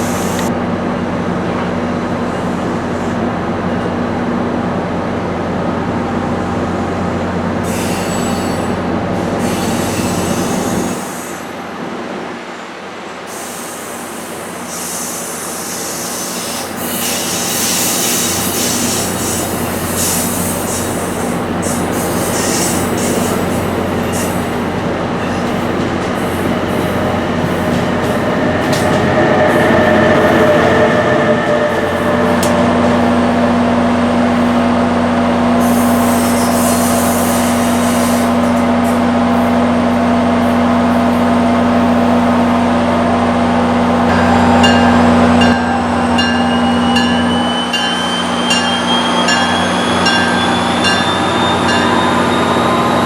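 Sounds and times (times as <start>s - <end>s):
train engine hum: 0.0s - 53.0s
wheels squealing on rails: 7.5s - 11.6s, 13.2s - 53.0s
metallic clatter of rail cars: 15.8s - 42.8s, 43.4s - 53.0s.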